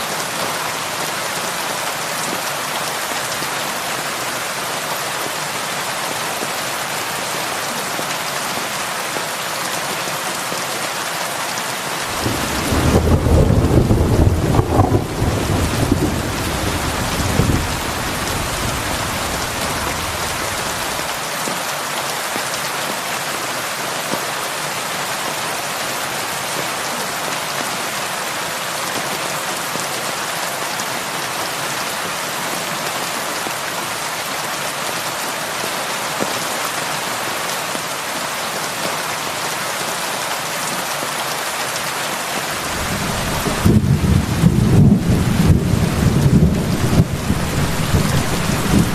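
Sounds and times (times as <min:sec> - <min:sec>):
heavy rain on a roof: 0:00.0 - 0:48.9
thunder rumbling: 0:12.1 - 0:21.1, 0:42.6 - 0:48.9.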